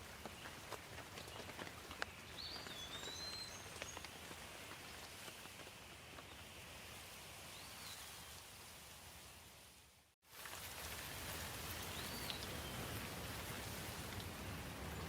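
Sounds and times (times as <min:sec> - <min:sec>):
light rain falling: 0:00.0 - 0:15.0
bird chirping: 0:01.3 - 0:04.2.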